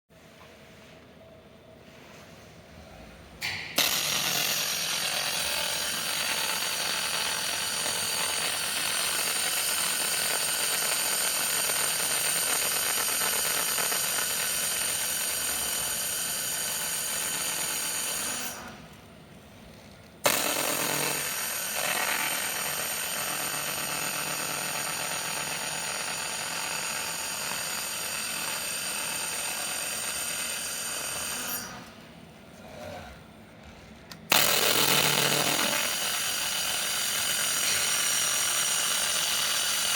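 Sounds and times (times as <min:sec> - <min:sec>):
welder starting snap: 0:03.4 - 0:11.1
laser welder hissing and whining: 0:03.4 - 0:18.8, 0:20.2 - 0:31.9, 0:34.3 - 0:39.9.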